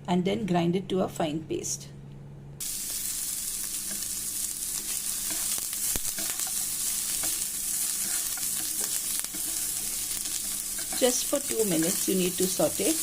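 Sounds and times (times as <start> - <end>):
food sizzling in hot oil: 2.6 - 13.0.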